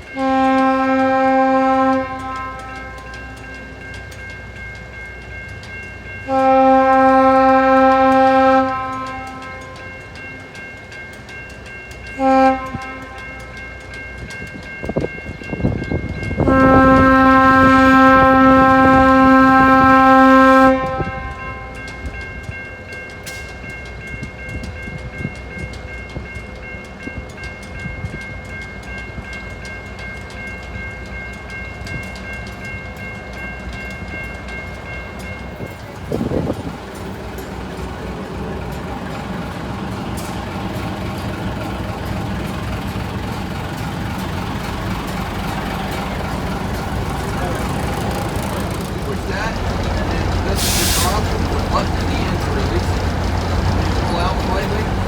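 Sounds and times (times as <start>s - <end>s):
locomotive rumbling: 0.0s - 55.0s
wheels clacking over rails: 0.0s - 55.0s
locomotive air horn blasts: 0.2s - 3.4s, 6.3s - 9.8s, 12.2s - 13.2s, 16.4s - 21.8s, 49.5s - 52.6s.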